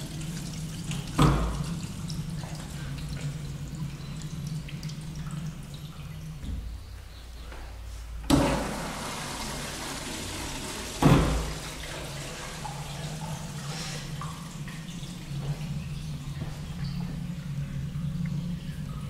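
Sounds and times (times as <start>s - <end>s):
water running in plumbing: 0.0s - 7.5s, 8.1s - 19.0s.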